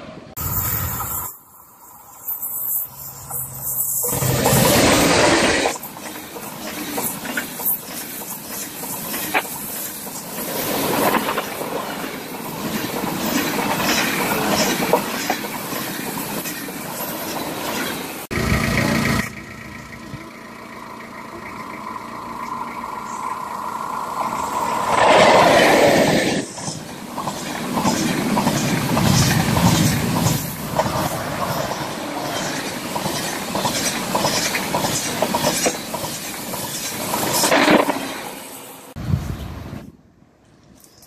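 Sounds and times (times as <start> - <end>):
high-speed train rushing past: 0.0 - 40.9
train wheel clacks: 4.1 - 18.0, 25.0 - 38.2.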